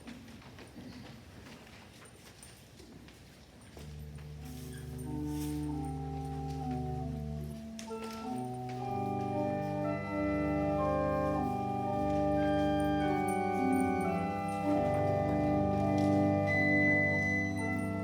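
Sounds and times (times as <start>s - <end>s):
organ playing slow chords: 4.0s - 18.0s.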